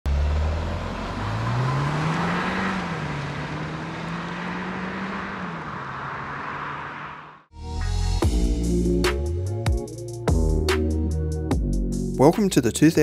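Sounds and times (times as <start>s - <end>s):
car engine accelerating: 0.1s - 7.5s
tyre and road noise: 0.1s - 7.5s.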